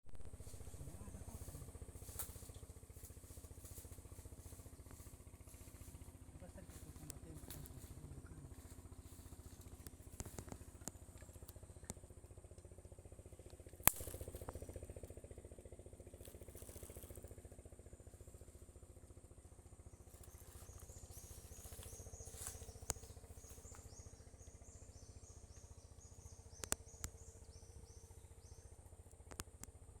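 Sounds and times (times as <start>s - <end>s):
sharp clicks: 13.4s - 14.7s, 26.6s - 27.2s.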